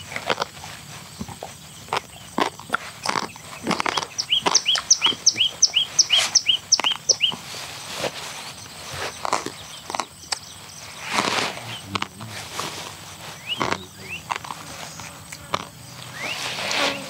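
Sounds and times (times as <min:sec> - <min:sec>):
bird chirping: 0:01.1 - 0:17.0.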